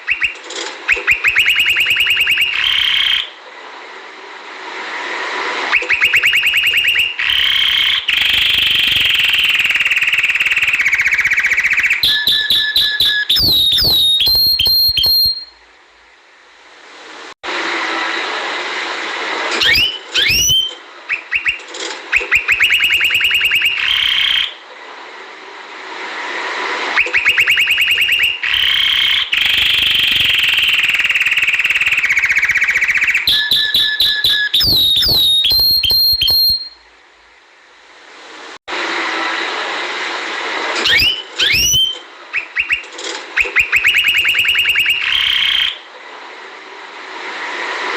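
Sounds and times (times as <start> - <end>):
canary singing trills: 0.0 - 3.3, 19.6 - 21.6.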